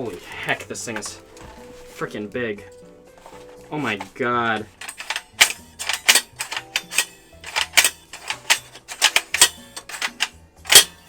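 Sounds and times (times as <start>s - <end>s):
quiet background music: 0.0s - 11.0s
plastic rifle parts clicking: 3.8s - 11.0s.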